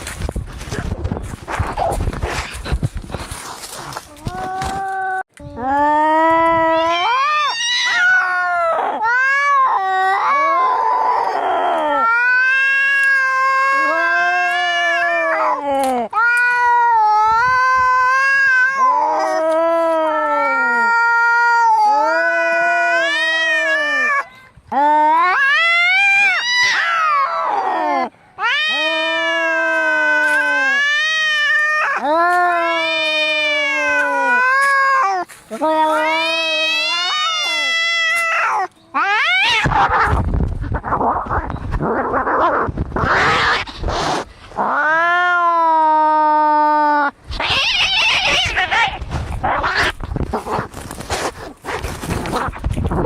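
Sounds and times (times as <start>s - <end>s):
cat yowling: 6.7s - 15.6s, 25.1s - 40.2s, 44.6s - 50.0s.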